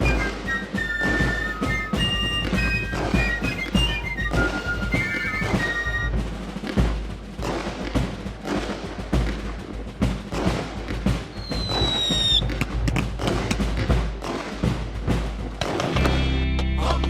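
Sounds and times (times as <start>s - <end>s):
whistling firework shell: 0.0s - 6.8s, 11.3s - 13.6s
fireworks bangs and crackling: 0.0s - 16.3s.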